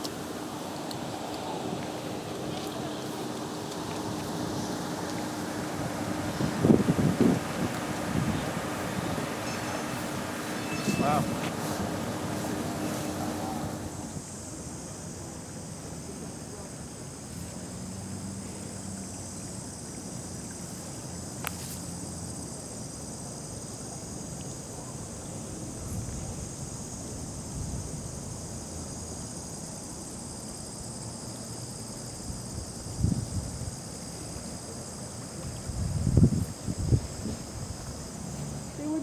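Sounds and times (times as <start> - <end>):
high insect chorus: 0.0 - 39.0
wind rumble on microphone: 4.0 - 14.2, 25.6 - 28.7, 32.2 - 33.9, 35.4 - 39.0
wind thumps on microphone: 5.8 - 13.9, 35.6 - 38.0.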